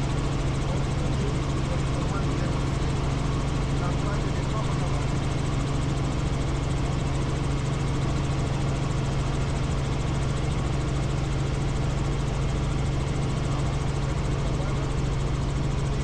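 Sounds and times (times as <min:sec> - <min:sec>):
helicopter rotor and engine drone: 0:00.0 - 0:16.0.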